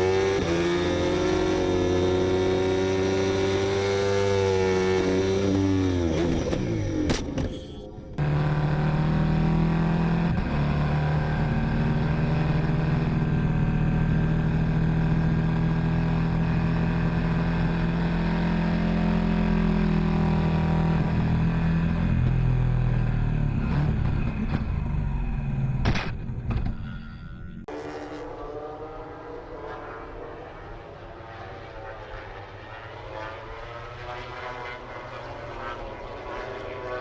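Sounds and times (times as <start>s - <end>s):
motorcycle engine running: 8.2s - 27.7s.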